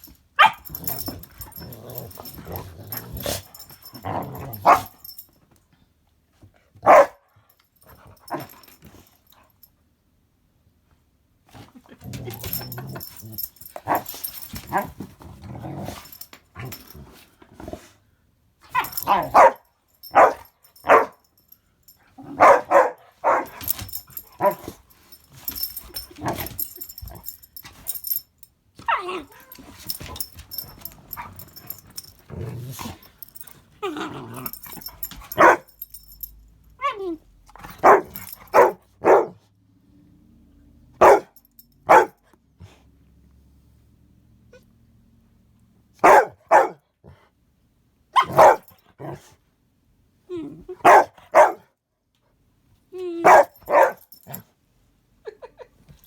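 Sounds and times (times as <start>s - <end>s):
dogs barking: 0.4s - 1.7s, 4.5s - 5.1s, 6.8s - 7.2s, 18.8s - 21.2s, 22.4s - 24.6s, 35.3s - 35.7s, 37.8s - 39.4s, 41.0s - 42.2s, 46.0s - 46.8s, 48.2s - 48.7s, 50.8s - 51.6s, 53.2s - 54.1s
dogs growling: 0.6s - 4.9s, 28.9s - 35.1s.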